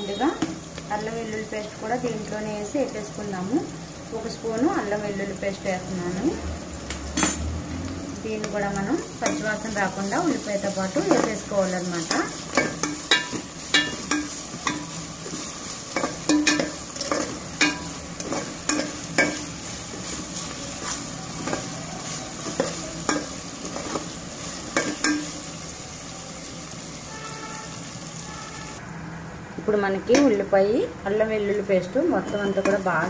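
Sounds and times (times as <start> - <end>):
onions sizzling in hot oil: 0.0 - 33.0
spatula scraping a pan: 12.0 - 24.2.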